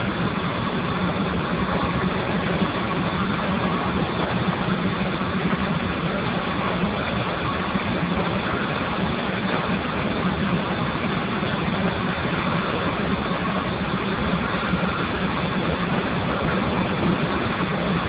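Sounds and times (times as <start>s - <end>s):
steam boiler rushing: 0.0s - 18.0s.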